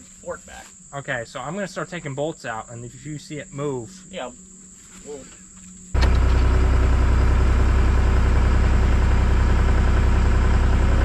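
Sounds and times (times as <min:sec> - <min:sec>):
diesel engine idling: 0:06.0 - 0:11.0.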